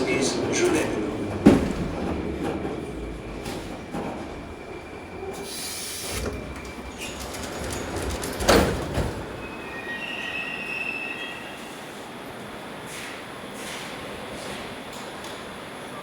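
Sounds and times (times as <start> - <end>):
train running on rails: 0.0 - 16.0
wheel squeals: 3.3 - 11.8.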